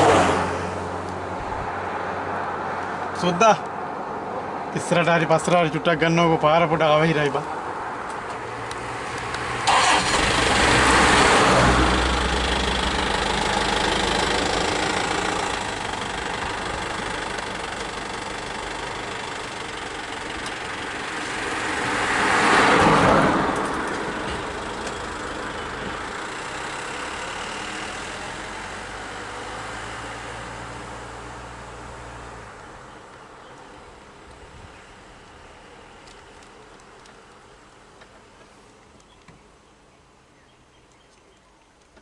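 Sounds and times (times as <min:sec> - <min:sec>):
vehicle engine running: 0:09.7 - 0:22.2, 0:23.5 - 0:36.8.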